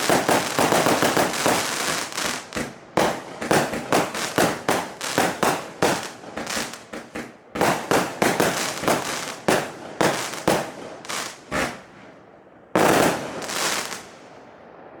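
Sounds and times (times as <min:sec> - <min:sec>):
firework cake bangs: 0:00.0 - 0:11.9.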